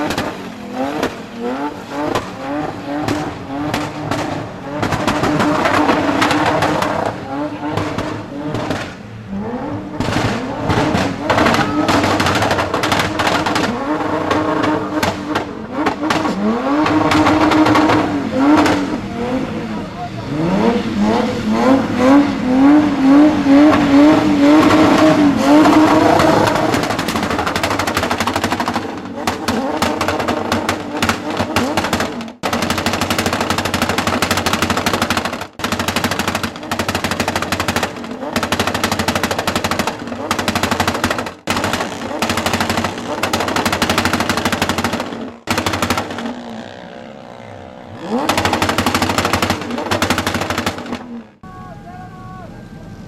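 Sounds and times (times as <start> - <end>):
car engine revving hard: 0.0 - 51.2
sharp crackles: 10.0 - 18.8, 24.6 - 51.4.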